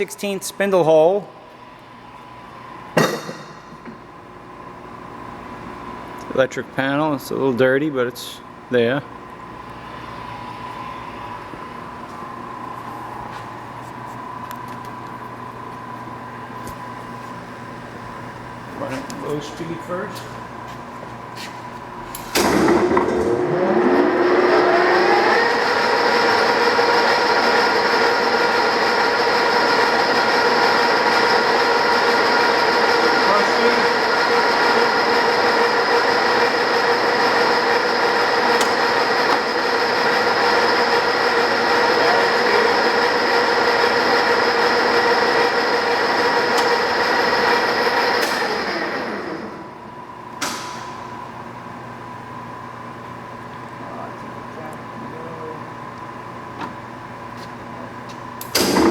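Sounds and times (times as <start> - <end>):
sharp clunk: 3.0 - 4.0, 50.4 - 51.0
lathe spindle spinning: 22.5 - 49.8.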